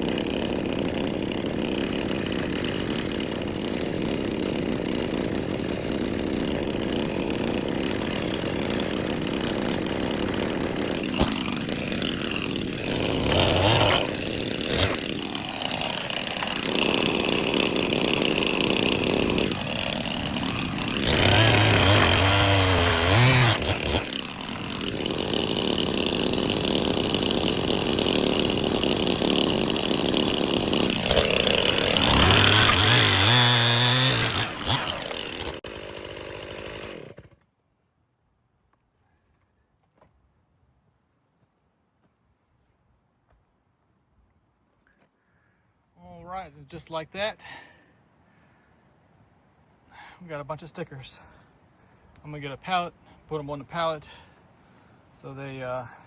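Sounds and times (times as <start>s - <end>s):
band sawmill engine running: 0.0s - 37.4s
saw blade cutting wood: 0.0s - 37.4s.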